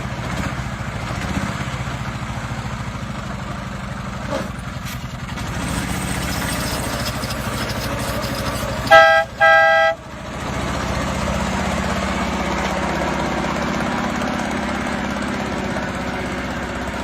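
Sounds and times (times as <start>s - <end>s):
truck engine idling: 0.0s - 17.0s
truck horn two-tone honk: 8.8s - 10.1s.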